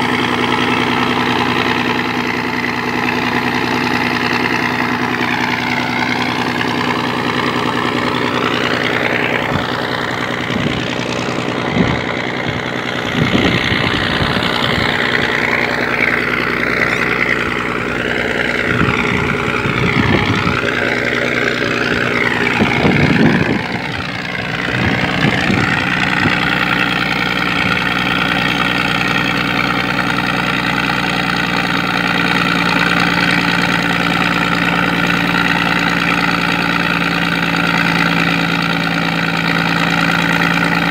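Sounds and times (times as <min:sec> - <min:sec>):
diesel engine running steadily: 0:00.0 - 0:40.9.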